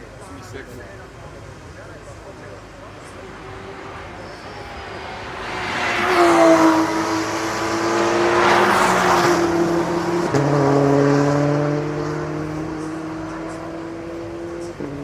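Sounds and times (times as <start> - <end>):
race cars passing at speed: 0.0 - 15.0.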